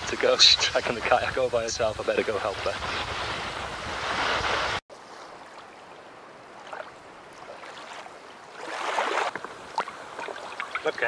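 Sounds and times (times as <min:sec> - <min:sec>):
rushing surf: 0:00.0 - 0:04.8
sea water lapping: 0:02.7 - 0:11.0
faint water splashes: 0:04.9 - 0:11.0.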